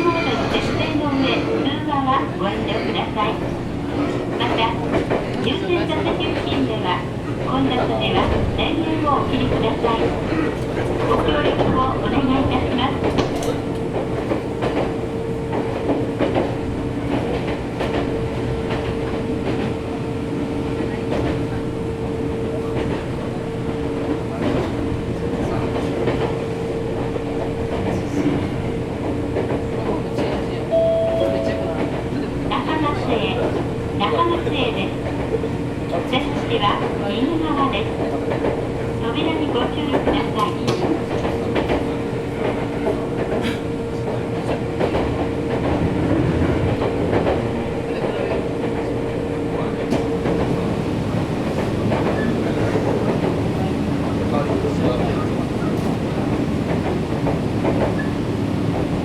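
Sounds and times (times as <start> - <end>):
train rumble and hum: 0.0 - 59.0.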